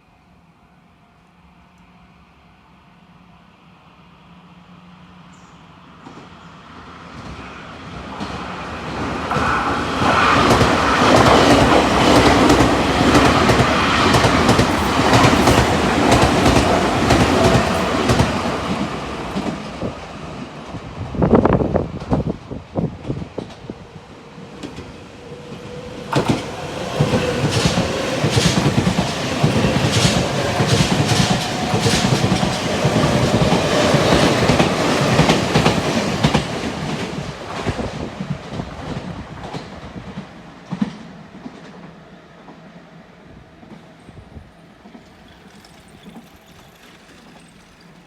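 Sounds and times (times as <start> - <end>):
train wheels clicking over rail joints: 9.3 - 20.1, 24.5 - 42.6, 43.6 - 48.0.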